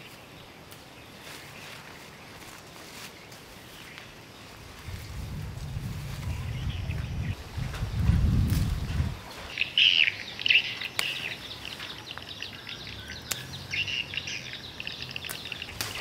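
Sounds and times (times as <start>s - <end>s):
small birds chirping: 0.0s - 7.7s, 9.2s - 16.0s
sharp clicks: 13.2s - 13.6s.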